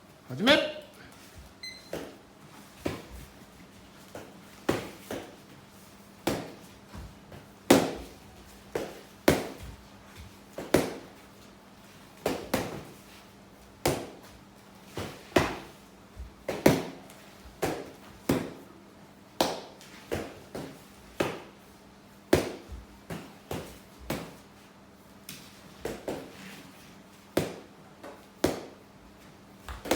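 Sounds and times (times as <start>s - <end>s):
foam noodles slapping arms: 6.2s - 11.2s, 19.4s - 21.6s, 22.3s - 24.4s.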